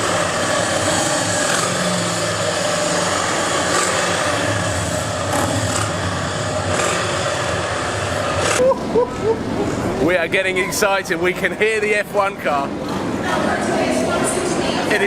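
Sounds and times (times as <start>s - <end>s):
vehicle engines running: 0.0s - 15.0s.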